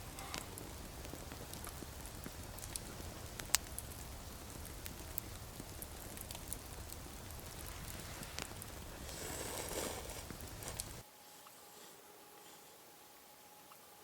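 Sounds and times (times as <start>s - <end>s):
wood fire crackling and popping: 0.0s - 11.0s.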